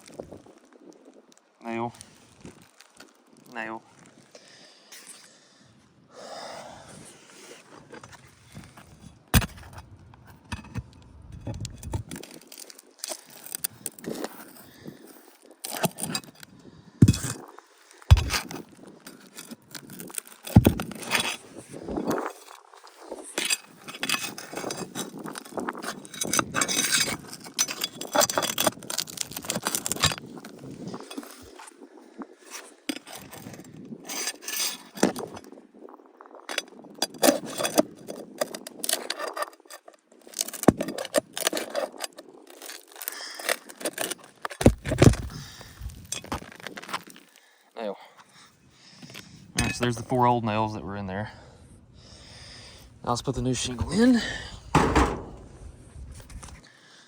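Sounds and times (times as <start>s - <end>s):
harder knocks: 54.7s - 55.6s
metal tools clinking on shingles: 54.7s - 55.7s.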